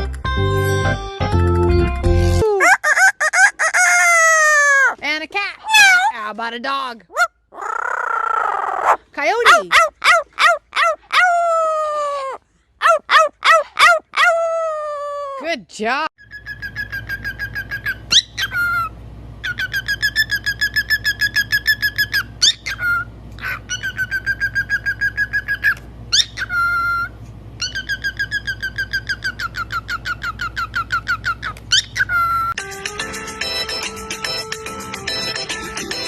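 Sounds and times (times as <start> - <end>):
parrot warbling trill: 2.4 - 5.0, 7.1 - 15.4, 16.2 - 32.6.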